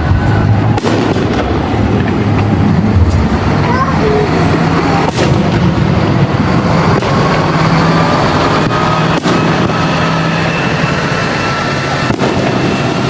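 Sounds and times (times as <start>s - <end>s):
fireworks bursting: 0.0s - 13.0s
faint fireworks whistles: 4.3s - 13.0s.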